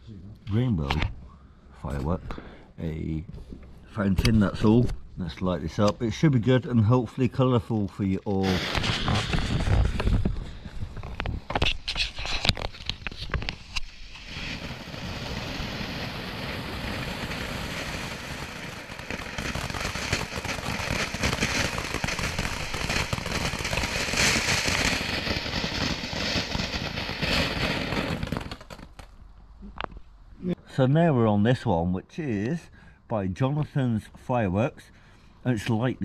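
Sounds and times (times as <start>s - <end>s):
firework fountain spraying: 8.4s - 29.1s.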